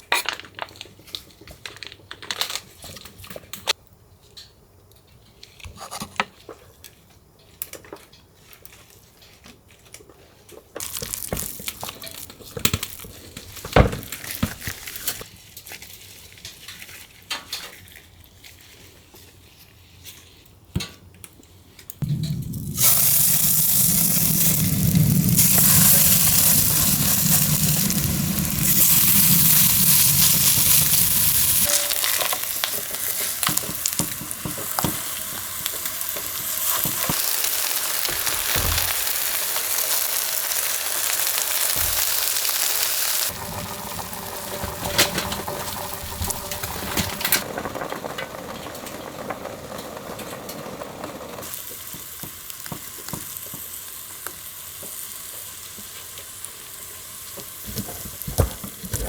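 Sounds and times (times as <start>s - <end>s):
food sizzling in a pan: 10.8s - 15.3s, 22.0s - 47.6s, 50.4s - 59.0s.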